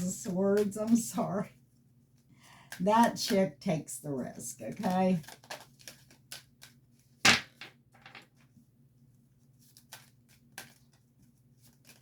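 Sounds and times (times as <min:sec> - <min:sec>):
cards tapping and flicking: 0:04.8 - 0:08.2, 0:09.7 - 0:12.0.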